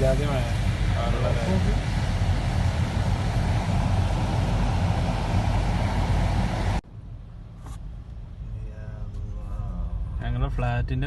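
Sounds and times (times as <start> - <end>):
heavy rain downpour: 0.0 - 6.8.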